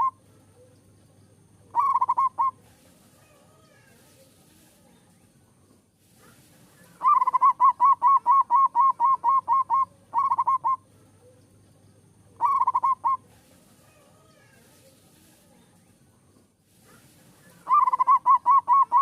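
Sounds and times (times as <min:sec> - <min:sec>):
dove cooing: 0:00.0 - 0:00.8, 0:01.6 - 0:04.0, 0:06.7 - 0:11.4, 0:12.2 - 0:14.6, 0:17.0 - 0:19.0.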